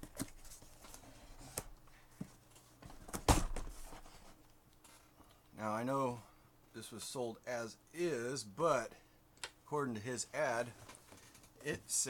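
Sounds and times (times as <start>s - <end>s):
box thumping down: 3.1s - 3.9s.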